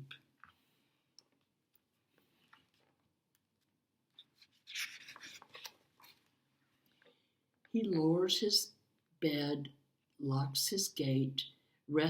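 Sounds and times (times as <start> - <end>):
paper page rustling: 4.1 - 7.1.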